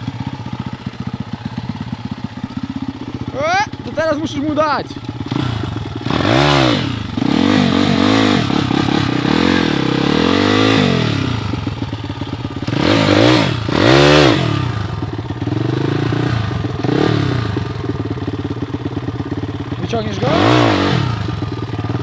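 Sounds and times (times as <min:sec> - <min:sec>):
pit bike engine revving: 0:03.0 - 0:22.0.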